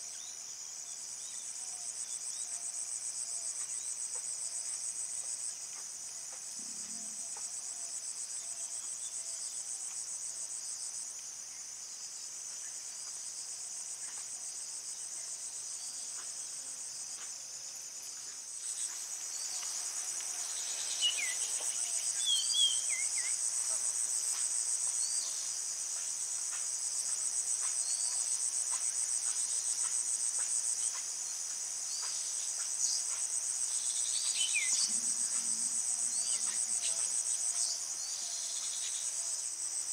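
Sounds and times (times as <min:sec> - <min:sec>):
insects trilling: 0:11.4 - 0:39.9.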